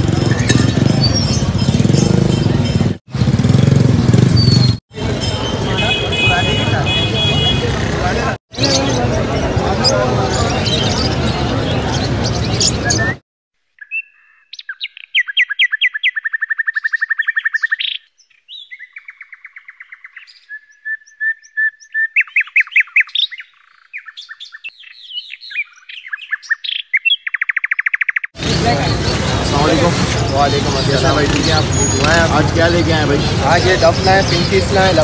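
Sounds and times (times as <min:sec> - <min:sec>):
crowd noise: 0:00.0 - 0:04.3, 0:04.9 - 0:13.2, 0:28.4 - 0:35.0
bird chirps and trills: 0:00.0 - 0:06.0, 0:08.6 - 0:13.2, 0:13.8 - 0:35.0.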